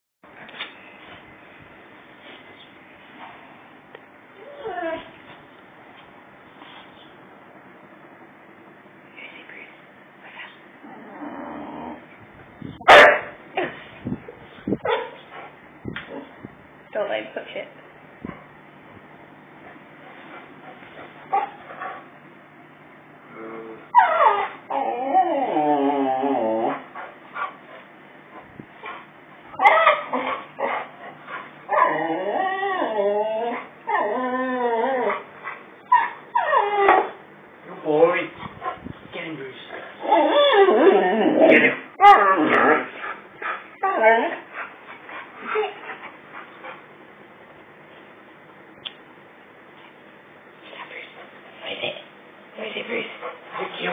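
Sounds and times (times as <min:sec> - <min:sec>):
dog whining: 0:04.4 - 0:05.2, 0:10.8 - 0:12.1, 0:23.4 - 0:26.9, 0:29.5 - 0:30.8, 0:31.7 - 0:37.2, 0:40.0 - 0:44.6
dog barking: 0:12.8 - 0:13.4
dog yipping: 0:14.8 - 0:15.2, 0:24.0 - 0:24.6, 0:29.6 - 0:30.8.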